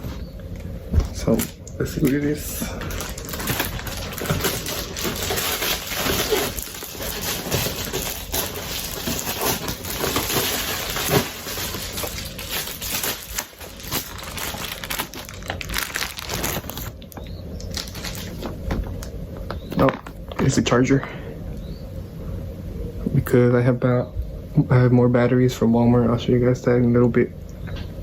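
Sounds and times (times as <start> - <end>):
packaging crinkling and tearing: 1.1 - 20.5.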